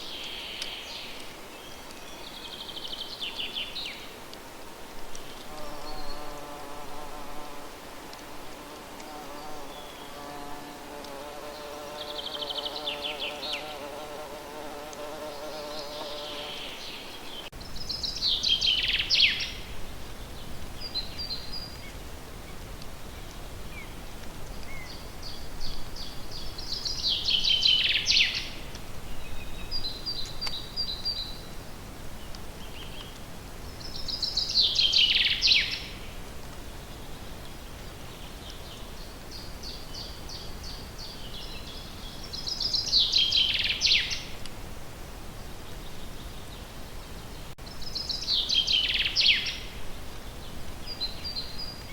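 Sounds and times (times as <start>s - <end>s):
insect buzzing: 5.5s - 7.8s, 8.5s - 16.8s
birds singing: 45.8s - 51.9s.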